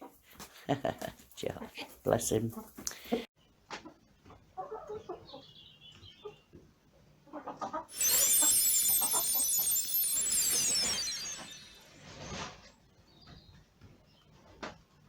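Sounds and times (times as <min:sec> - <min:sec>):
high shimmering sound: 0:07.9 - 0:12.5.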